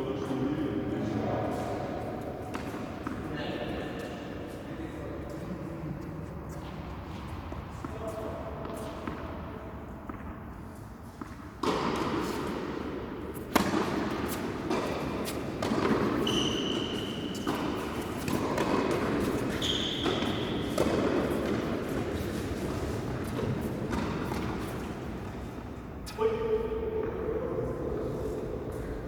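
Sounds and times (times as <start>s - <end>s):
tennis ball struck by rackets: 11.2s - 12.6s, 13.4s - 16.4s, 17.4s - 24.8s
ball bouncing on court: 13.5s - 22.3s, 23.2s - 24.8s.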